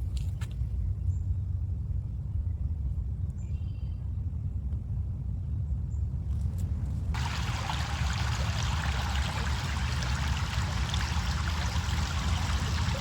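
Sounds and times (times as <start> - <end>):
running water: 7.2 - 13.0.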